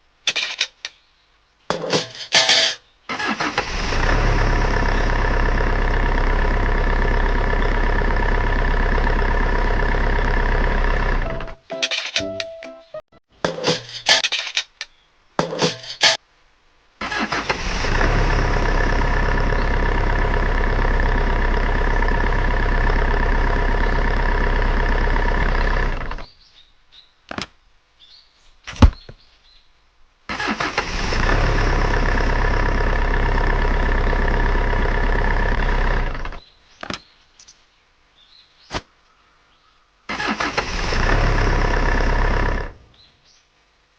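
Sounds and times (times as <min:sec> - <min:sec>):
truck motor running: 0:03.6 - 0:11.6, 0:17.5 - 0:26.3, 0:30.8 - 0:36.4, 0:40.2 - 0:42.9.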